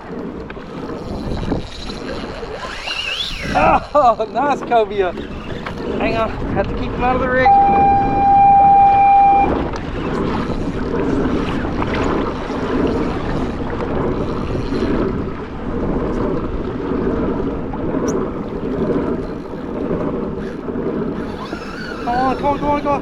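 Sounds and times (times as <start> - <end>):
water sloshing around kayak: 0.0 - 23.0
wind buffeting microphone: 0.0 - 23.0
steady high tone: 7.4 - 9.5.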